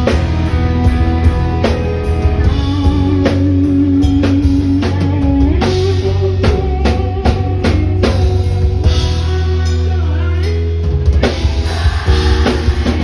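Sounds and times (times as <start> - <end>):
bass guitar: 0.0 - 13.0
drum kit kick and cymbals: 11.0 - 13.0.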